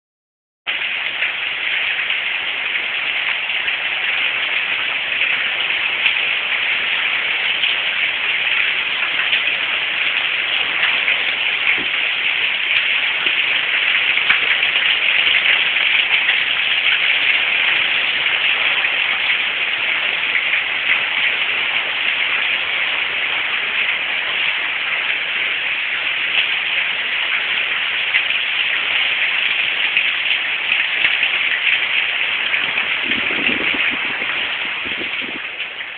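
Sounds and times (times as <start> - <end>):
rain pattering: 0.7 - 35.9.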